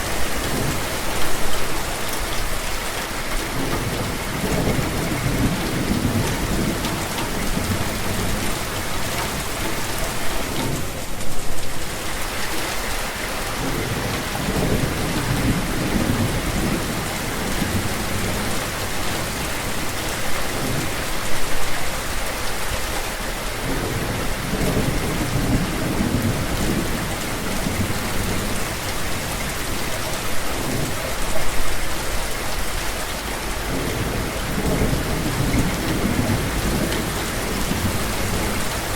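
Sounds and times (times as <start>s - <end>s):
heavy rain falling: 0.0s - 38.9s
thunder rumbling: 3.5s - 11.6s, 33.6s - 38.9s.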